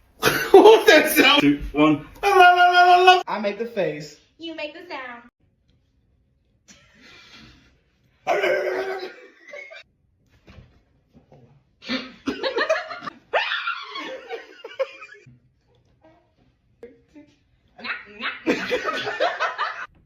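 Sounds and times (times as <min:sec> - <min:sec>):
people laughing: 0:00.2 - 0:03.2, 0:08.3 - 0:09.8, 0:11.9 - 0:15.3, 0:17.8 - 0:19.9.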